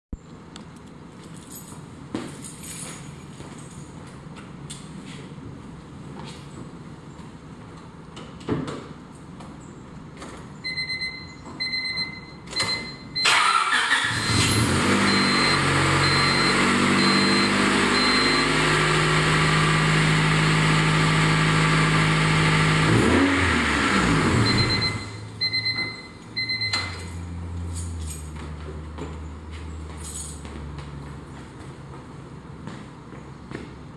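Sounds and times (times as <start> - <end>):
car warning chime beeping: 10.6 - 13.7, 14.8 - 19.0, 24.4 - 27.4
car engine cranking and idling: 13.2 - 31.9.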